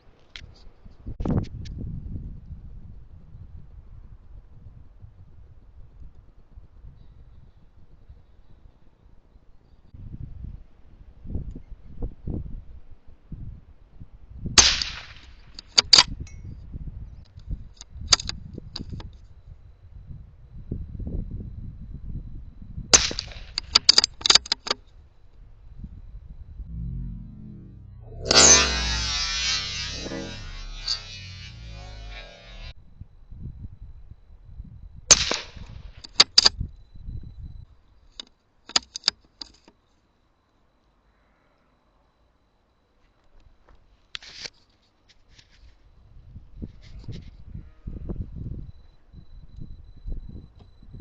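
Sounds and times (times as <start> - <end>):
rifle shot: 14.6 - 15.3, 23.0 - 23.8, 35.1 - 35.7
sharp metallic clicks: 23.0 - 24.8, 35.1 - 36.5
rifle shot with echo: 35.1 - 35.6.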